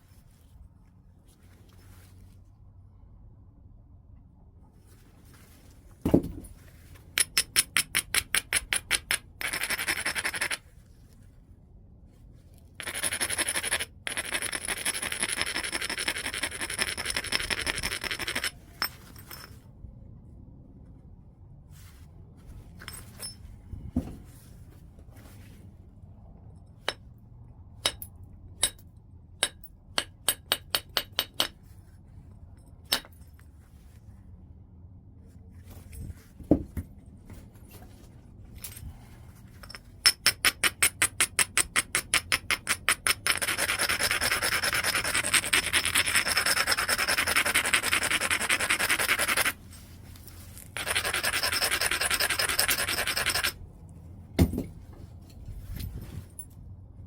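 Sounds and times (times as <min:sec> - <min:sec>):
stone thump: 0:06.0 - 0:06.5, 0:24.0 - 0:24.2, 0:36.5 - 0:36.9, 0:54.4 - 0:54.8
stone scraping against stone: 0:12.8 - 0:19.6, 0:39.7 - 0:53.6.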